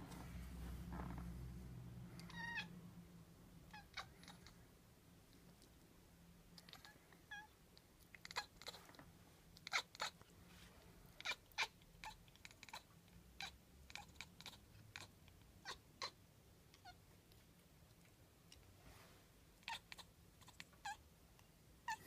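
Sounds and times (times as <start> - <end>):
cat chattering: 3.7 - 4.6, 6.6 - 7.5, 8.1 - 8.8, 9.6 - 10.2, 11.2 - 17.0, 19.6 - 21.0.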